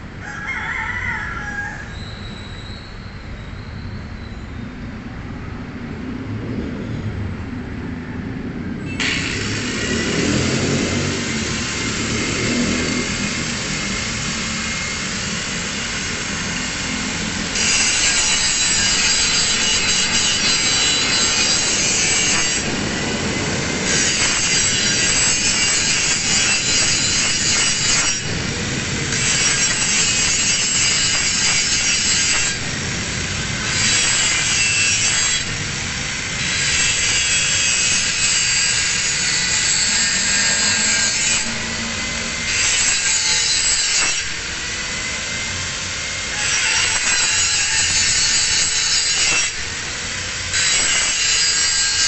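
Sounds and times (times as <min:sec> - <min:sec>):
angle grinder grinding steel: 0:09.0 - 0:52.0.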